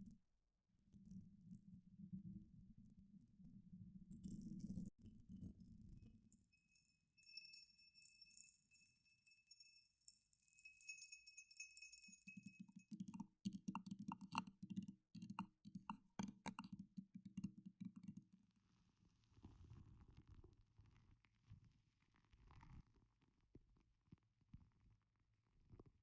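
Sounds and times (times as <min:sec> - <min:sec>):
high ringing chime tone: 0:06.6 - 0:12.8
clicks and taps: 0:12.3 - 0:18.4.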